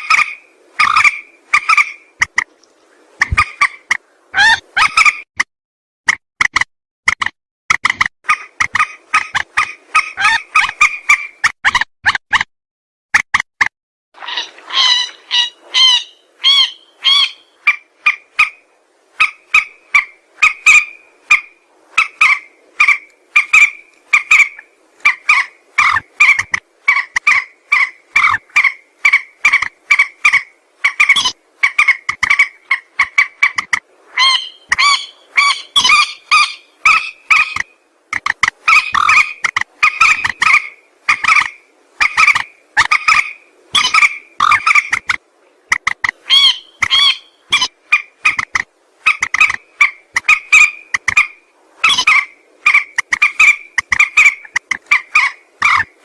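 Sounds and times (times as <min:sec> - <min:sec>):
rail bird calling: 0:00.0 - 0:02.5, 0:14.2 - 0:56.0.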